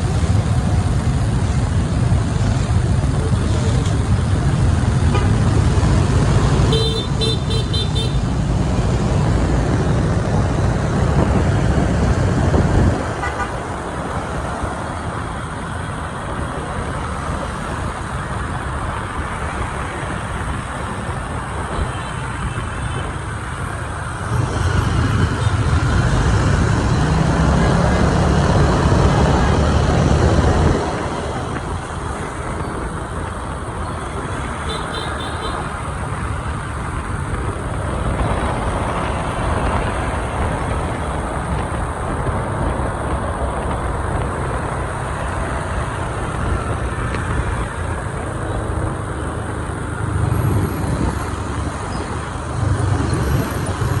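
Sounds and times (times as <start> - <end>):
engine and road rumble: 0.0 - 54.0
vehicle horn beeping: 6.7 - 8.2, 13.2 - 13.6, 34.6 - 35.6.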